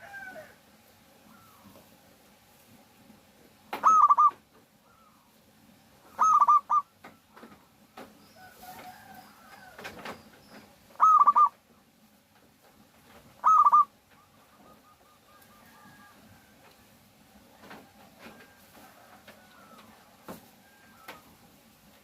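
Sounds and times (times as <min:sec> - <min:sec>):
dove cooing: 0:01.2 - 0:01.8, 0:03.8 - 0:05.3, 0:06.0 - 0:07.7, 0:10.9 - 0:11.6, 0:13.3 - 0:16.4, 0:19.0 - 0:21.4
faint bird calls: 0:01.2 - 0:01.8, 0:03.8 - 0:05.4, 0:06.0 - 0:08.8, 0:09.4 - 0:11.6, 0:13.4 - 0:16.2.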